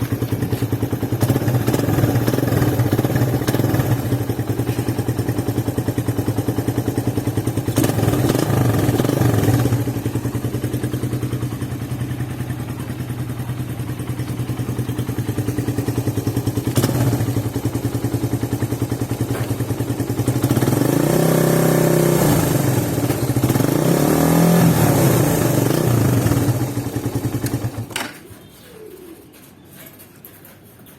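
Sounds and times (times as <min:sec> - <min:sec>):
motorcycle engine idling and revving: 0:00.0 - 0:28.2.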